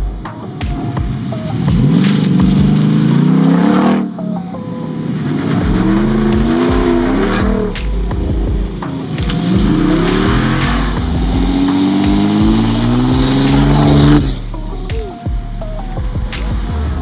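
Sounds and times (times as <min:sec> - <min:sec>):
high whine: 0:05.6 - 0:17.0
car engine accelerating hard: 0:09.6 - 0:14.4.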